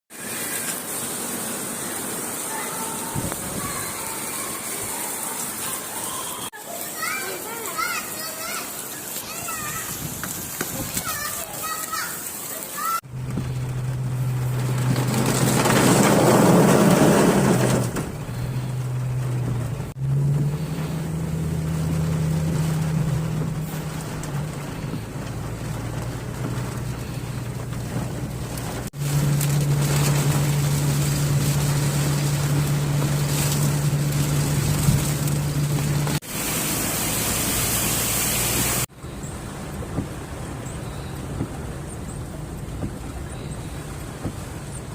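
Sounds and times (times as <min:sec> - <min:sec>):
rain: 0:00.1 - 0:44.9
vehicle engines humming: 0:13.0 - 0:44.9.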